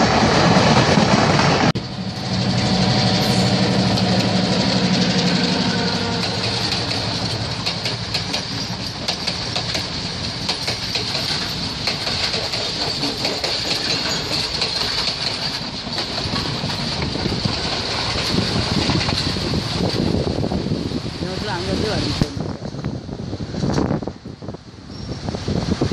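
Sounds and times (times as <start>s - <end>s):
train rolling rumble: 0.0s - 25.9s
wheels clicking over rail joints: 3.5s - 20.3s.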